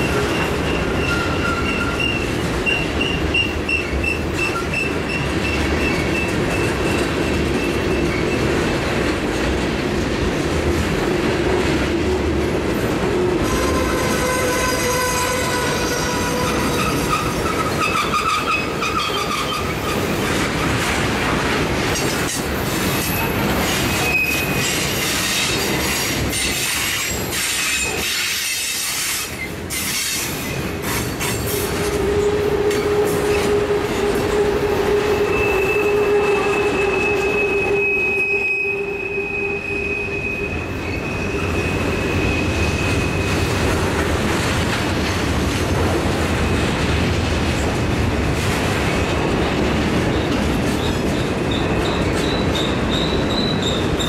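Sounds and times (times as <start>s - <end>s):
freight train wheels clattering: 0.0s - 37.8s, 40.4s - 54.0s.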